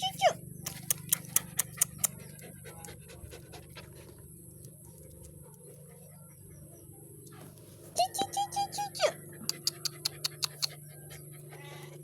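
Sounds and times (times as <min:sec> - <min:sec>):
dog panting: 0:00.8 - 0:04.4, 0:09.3 - 0:12.0.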